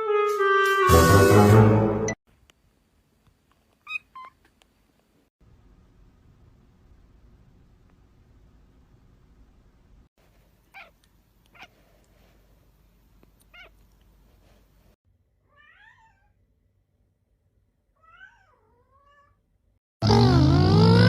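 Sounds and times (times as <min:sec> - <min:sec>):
cat meowing: 0:13.5 - 0:13.8, 0:15.5 - 0:16.4, 0:18.0 - 0:19.4.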